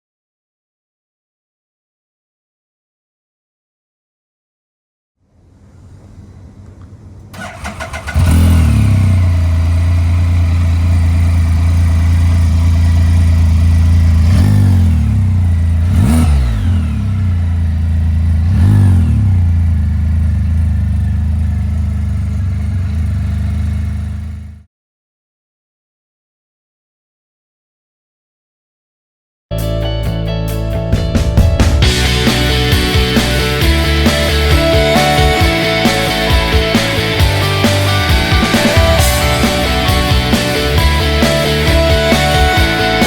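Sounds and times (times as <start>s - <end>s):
motorcycle engine starting and idling: 7.3s - 24.7s, 31.8s - 43.0s
engine revving: 7.4s - 24.7s, 31.8s - 43.0s.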